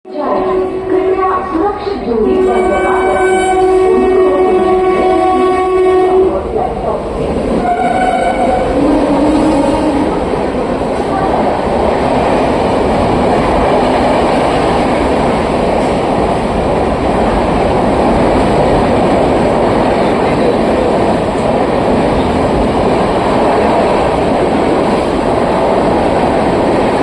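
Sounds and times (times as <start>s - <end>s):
train wheels rushing on rails: 0.2s - 27.0s.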